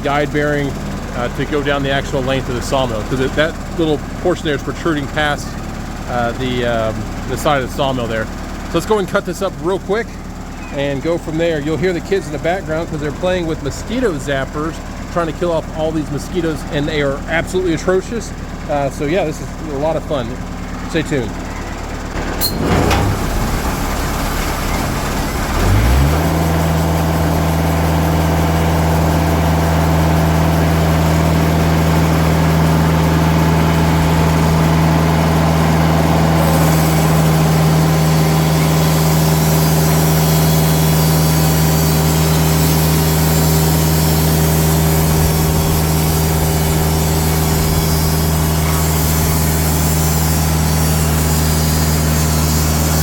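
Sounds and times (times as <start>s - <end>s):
diesel engine revving: 0.0s - 53.0s
band blade sawing log: 25.5s - 53.0s.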